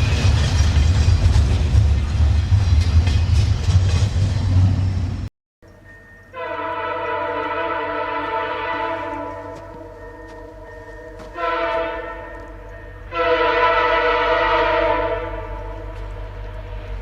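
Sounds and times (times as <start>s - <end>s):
low train rumble: 0.0s - 17.0s
locomotive air horn blasts: 6.3s - 9.9s, 11.3s - 17.0s.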